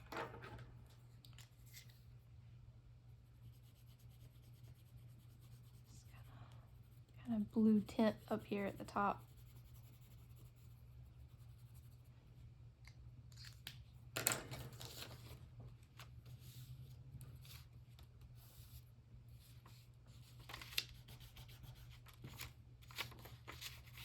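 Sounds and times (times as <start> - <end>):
paper rubbing and rustling: 14.7 - 24.0.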